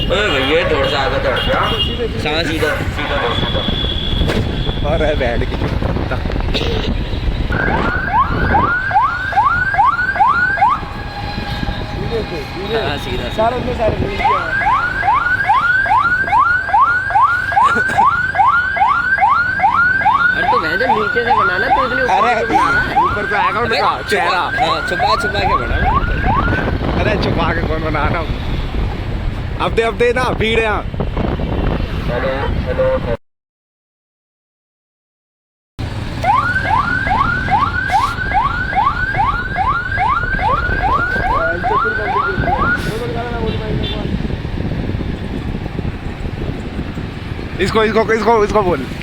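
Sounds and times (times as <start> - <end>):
motorbike ride rumble: 0.0 - 18.4, 35.8 - 49.0
electronic siren horn whooping: 7.5 - 26.6, 36.2 - 42.8.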